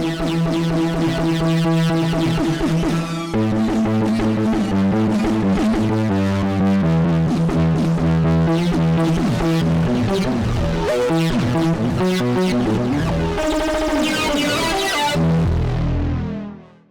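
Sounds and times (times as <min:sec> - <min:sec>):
distorted synthesizer lead melody: 0:08.4 - 0:16.9
sustained synth chords: 0:08.5 - 0:16.9.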